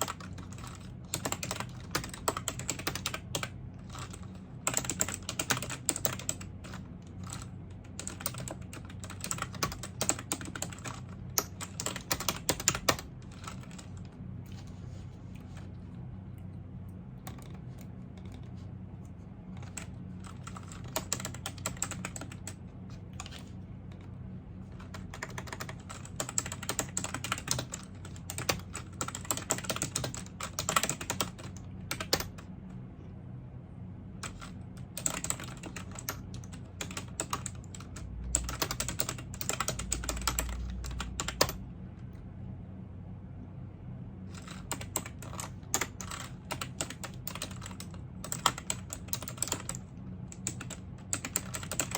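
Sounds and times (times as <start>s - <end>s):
typing on computer keyboard: 0.0s - 14.1s, 17.2s - 18.5s, 19.6s - 22.6s, 24.7s - 32.5s, 34.2s - 41.6s, 44.3s - 51.9s
steady low hum: 0.0s - 51.9s.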